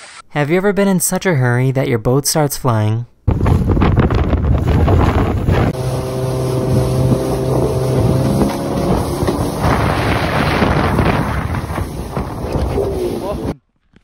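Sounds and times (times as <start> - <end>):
water noise: 3.3 - 13.6
wind buffeting microphone: 3.3 - 13.6
motorboat engine drone: 4.6 - 13.5.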